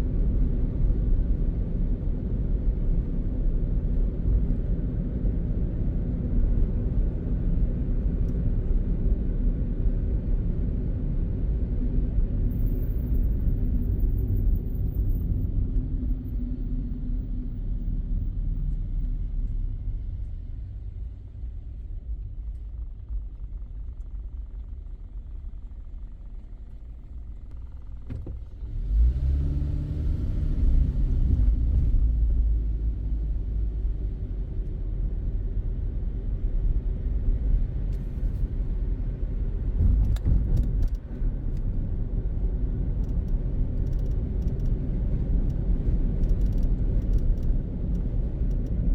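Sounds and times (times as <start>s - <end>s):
road rumble: 0.0s - 48.9s
car engine accelerating: 27.5s - 33.0s.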